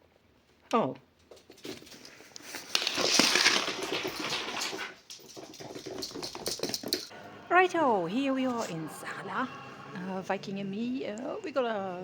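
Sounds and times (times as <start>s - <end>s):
gift bag rustling: 1.8s - 7.1s.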